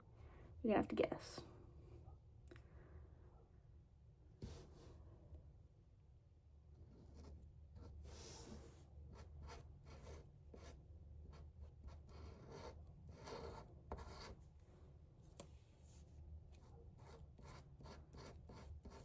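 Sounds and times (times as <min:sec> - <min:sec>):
pencil scratching while drawing: 0:06.8 - 0:14.4, 0:16.6 - 0:19.0.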